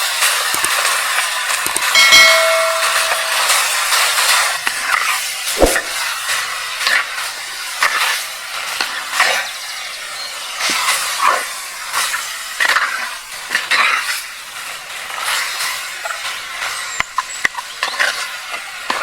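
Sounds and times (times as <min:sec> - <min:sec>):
sharp clinks: 0:01.7 - 0:04.0.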